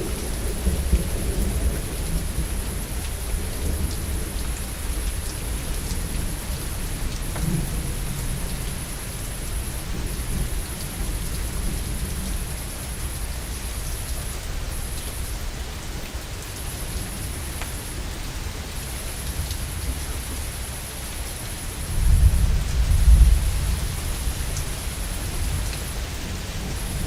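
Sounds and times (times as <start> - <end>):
heavy rain: 0.0 - 27.0
rolling thunder: 21.9 - 27.0.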